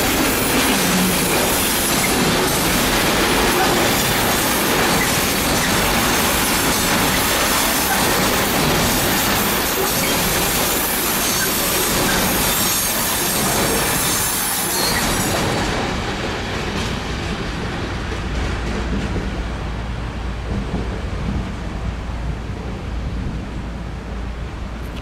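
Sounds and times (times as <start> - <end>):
train wheels on rails: 0.0 - 25.0
wheel squeal: 9.6 - 15.4.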